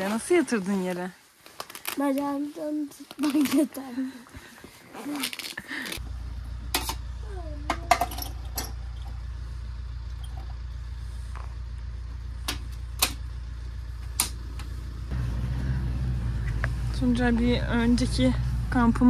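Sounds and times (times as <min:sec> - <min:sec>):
vehicle engine idling: 0:06.0 - 0:19.0.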